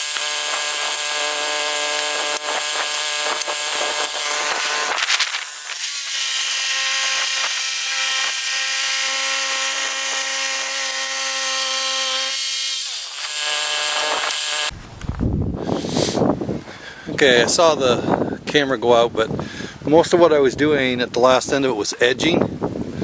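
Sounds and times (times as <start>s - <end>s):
bandsaw sawmill engine running: 0.0s - 14.7s.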